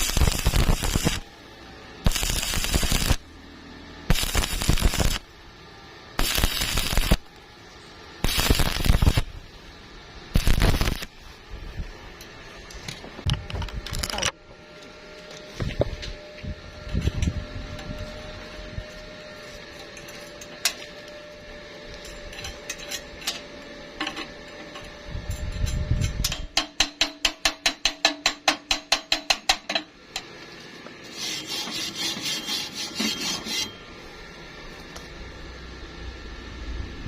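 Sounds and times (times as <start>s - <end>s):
crackling hiss: 0.0s - 1.3s, 2.0s - 3.2s, 4.1s - 5.3s, 6.2s - 7.5s, 8.2s - 9.6s, 10.3s - 11.4s
ringing metal scraping strokes: 31.0s - 34.1s.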